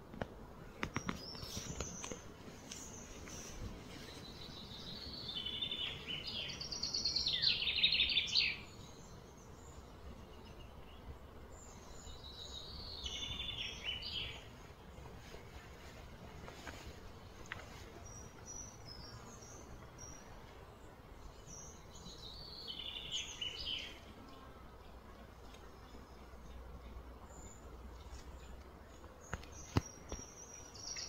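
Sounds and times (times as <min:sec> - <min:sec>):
outdoor background hiss: 0:00.0 - 0:31.0
bird singing trills: 0:04.2 - 0:14.5, 0:21.2 - 0:24.5, 0:29.2 - 0:31.0.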